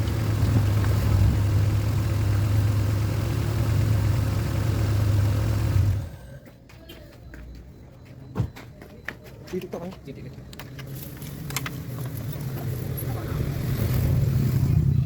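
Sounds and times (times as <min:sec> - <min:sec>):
car engine idling: 0:00.0 - 0:06.4.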